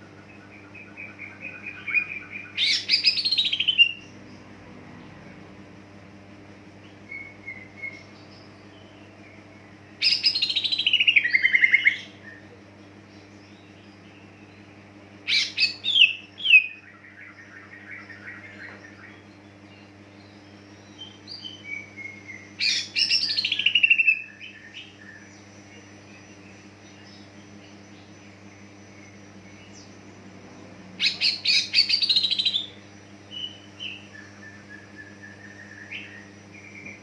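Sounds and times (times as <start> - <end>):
bird twittering: 0.0 - 4.1, 6.8 - 37.0
bird singing rapid descending notes: 0.0 - 5.6, 6.8 - 37.0
low electrical hum: 0.0 - 37.0.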